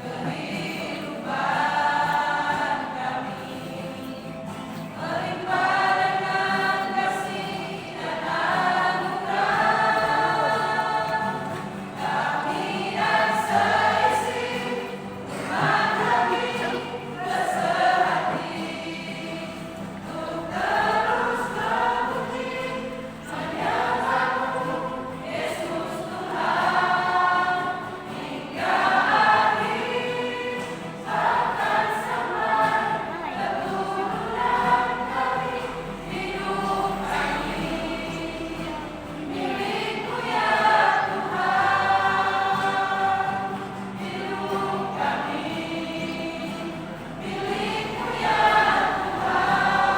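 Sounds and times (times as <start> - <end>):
choir singing a hymn: 0.0 - 49.9.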